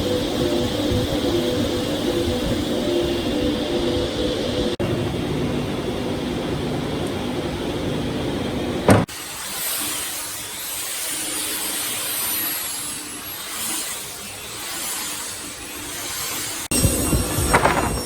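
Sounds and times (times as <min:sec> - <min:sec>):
faint high whine: 0:00.0 - 0:09.1, 0:15.5 - 0:18.0.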